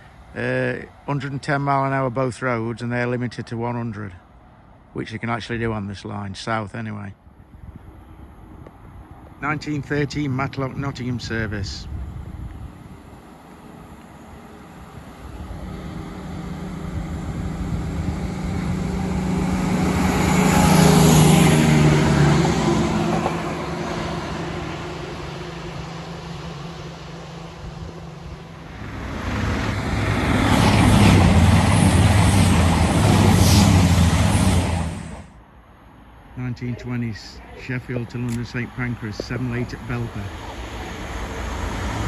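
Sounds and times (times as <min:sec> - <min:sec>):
diesel train engine passing: 0:07.2 - 0:42.0
train wheels on rails: 0:12.9 - 0:35.3.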